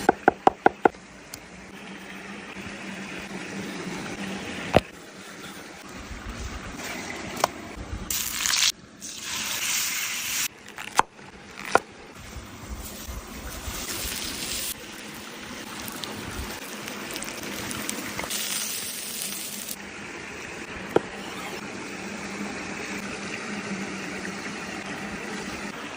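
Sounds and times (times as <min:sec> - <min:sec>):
food sizzling on hot stone: 0:08.1 - 0:10.5, 0:12.2 - 0:19.8.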